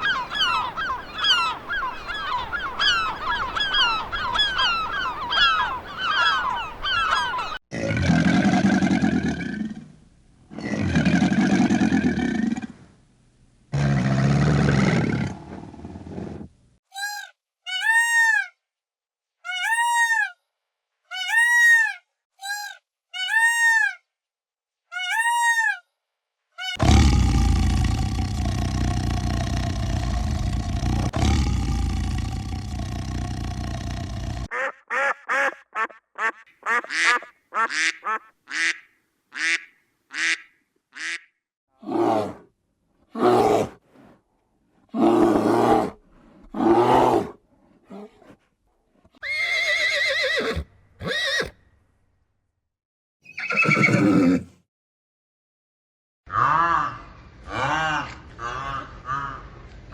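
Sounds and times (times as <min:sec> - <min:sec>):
honking calls: 0:00.0 - 0:07.6
long low animal calls: 0:00.0 - 0:07.6, 0:26.8 - 0:34.5
loud rough roar-like call: 0:26.8 - 0:34.5.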